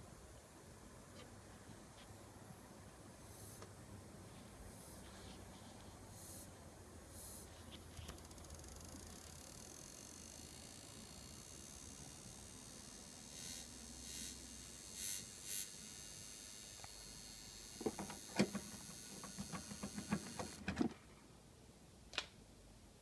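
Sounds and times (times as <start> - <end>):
transformer buzzing with whine: 8.2 - 20.7.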